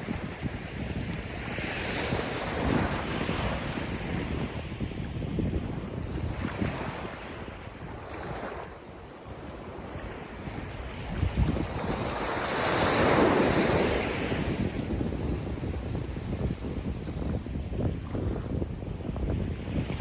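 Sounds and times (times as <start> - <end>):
gusty wind rumble: 0.0 - 20.0
ocean waves breaking: 6.0 - 20.0.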